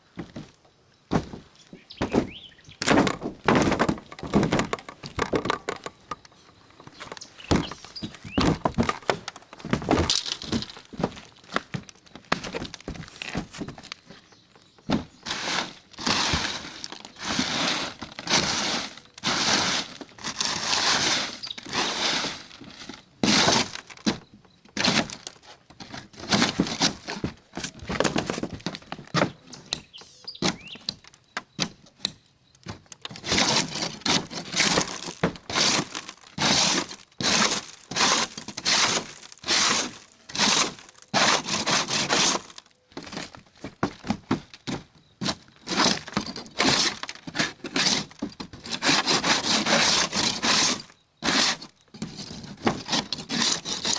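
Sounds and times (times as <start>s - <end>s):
hand scraper scraping roof coating: 14.9s - 29.4s, 33.1s - 53.9s.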